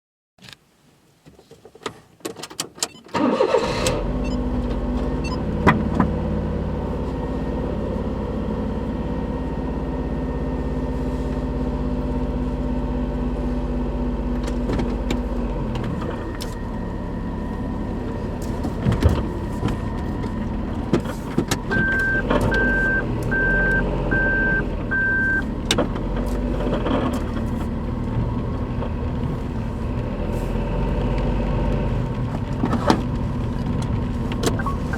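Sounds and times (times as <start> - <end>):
clicks before engine start: 1.8 - 4.8, 21.0 - 27.5
car engine starting and idling: 2.9 - 34.9
short beeps: 21.7 - 25.5.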